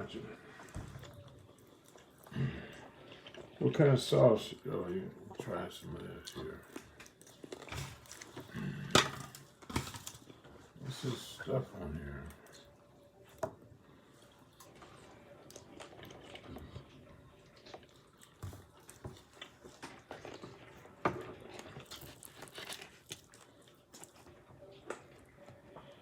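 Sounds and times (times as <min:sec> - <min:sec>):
chewing and biting food: 0:00.5 - 0:03.6, 0:06.0 - 0:08.6, 0:14.0 - 0:26.0.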